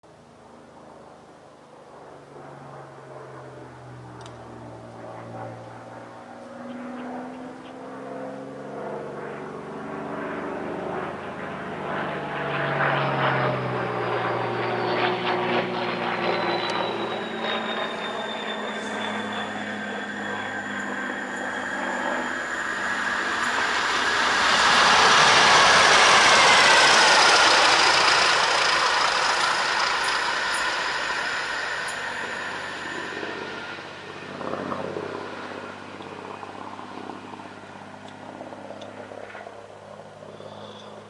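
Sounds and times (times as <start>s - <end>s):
diesel locomotive engine growling: 12.2s - 36.5s
turbocharger whistle: 13.0s - 34.8s.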